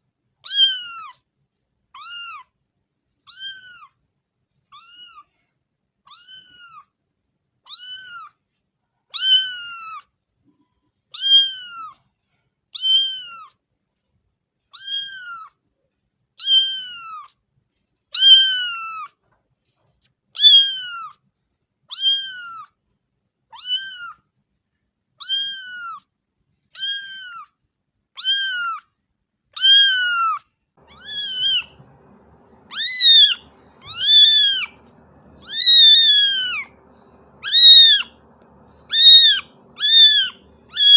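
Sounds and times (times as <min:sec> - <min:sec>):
cat meowing: 0:00.4 - 0:01.2, 0:02.0 - 0:02.5, 0:03.2 - 0:03.9, 0:04.8 - 0:05.3, 0:06.1 - 0:06.9, 0:07.7 - 0:08.3, 0:09.2 - 0:10.0, 0:11.2 - 0:12.0, 0:12.8 - 0:13.5, 0:14.8 - 0:15.5, 0:16.4 - 0:17.3, 0:18.2 - 0:19.1, 0:20.4 - 0:21.1, 0:21.9 - 0:22.7, 0:23.5 - 0:24.2, 0:25.2 - 0:26.0, 0:26.8 - 0:27.5, 0:28.2 - 0:28.8, 0:29.6 - 0:40.9
faint low rumble: 0:30.8 - 0:40.9.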